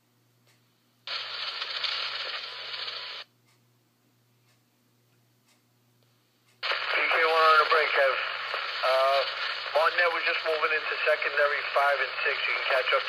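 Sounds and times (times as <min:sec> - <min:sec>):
radio static hiss: 0:01.1 - 0:03.3, 0:06.6 - 0:13.0.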